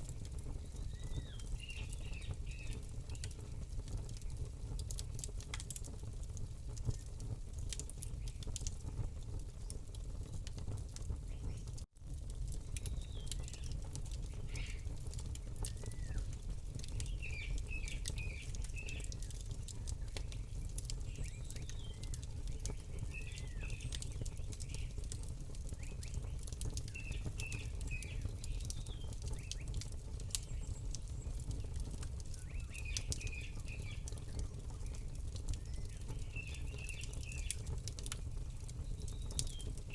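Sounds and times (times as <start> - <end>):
small birds chirping: 0.0 - 5.9, 7.9 - 8.6, 9.5 - 11.8, 12.5 - 39.9
campfire crackling and popping: 0.0 - 39.9.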